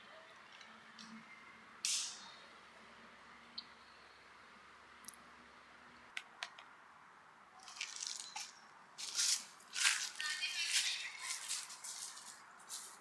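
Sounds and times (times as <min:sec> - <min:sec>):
rustling scraping noise: 0:07.6 - 0:13.0.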